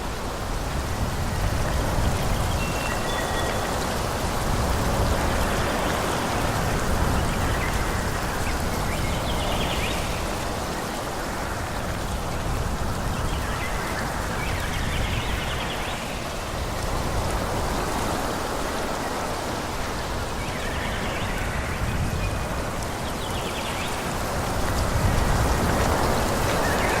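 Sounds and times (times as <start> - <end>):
wind through trees: 0.0 - 27.0.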